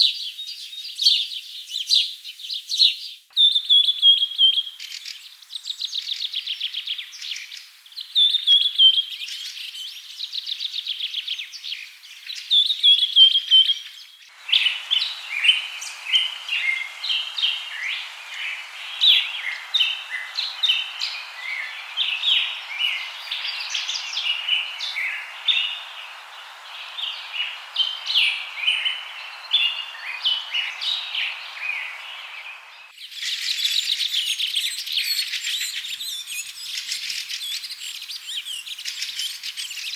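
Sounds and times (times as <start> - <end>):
chorus of birds chirping: 0.0 - 39.9
steady hiss: 14.3 - 34.1
bird trilling: 14.4 - 32.7.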